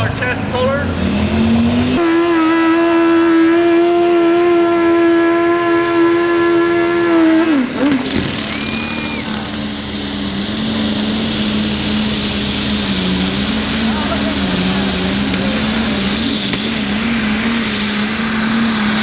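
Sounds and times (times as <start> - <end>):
tractor engine revving under load: 0.8 - 19.0.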